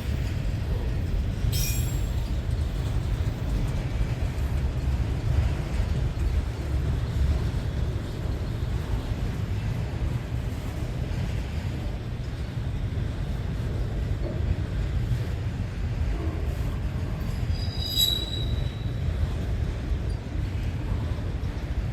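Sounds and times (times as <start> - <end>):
freight train rumbling past: 0.0 - 21.9
train wheel squealing: 0.2 - 3.7, 16.2 - 20.3.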